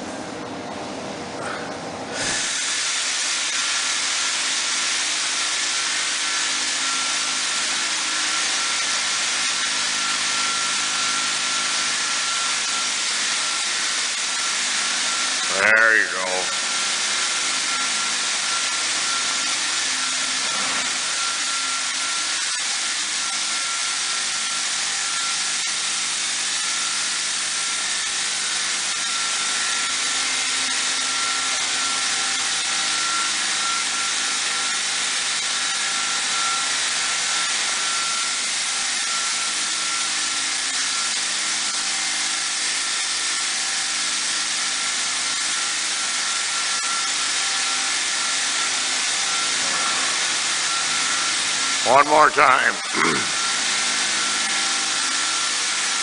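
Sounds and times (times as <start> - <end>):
steady motor whine: 0.0 - 42.1, 43.6 - 56.0
rushing hiss of air and spray: 2.2 - 6.2.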